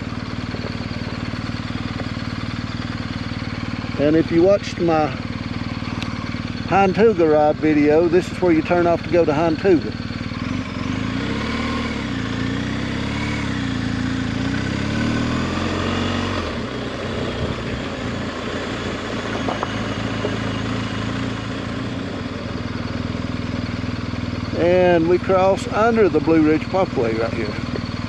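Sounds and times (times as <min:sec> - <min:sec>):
motorcycle engine running: 0:00.0 - 0:28.0
wind and road noise: 0:09.7 - 0:28.0.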